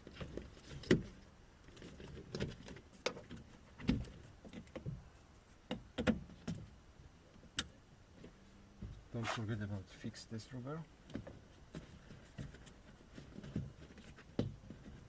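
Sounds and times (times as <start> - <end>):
car door parts clicking and knocking: 5.7 - 6.7.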